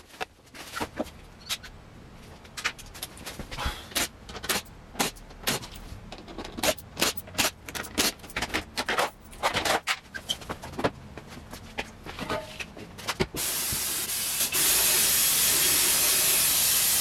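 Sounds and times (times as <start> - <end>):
hard objects clicking and knocking: 2.4 - 11.0.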